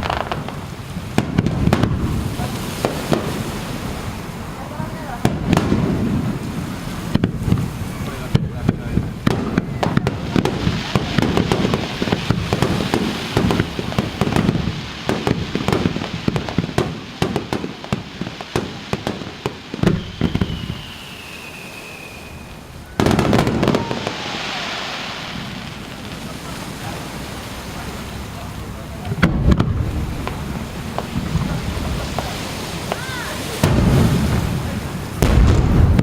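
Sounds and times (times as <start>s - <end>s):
firework crackling: 0.0s - 36.0s
fireworks bursting: 0.0s - 36.0s
thin falling whistle: 19.8s - 23.1s.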